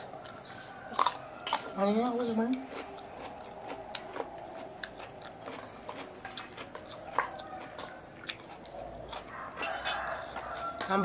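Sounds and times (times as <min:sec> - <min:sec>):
people chewing: 0:00.0 - 0:11.0.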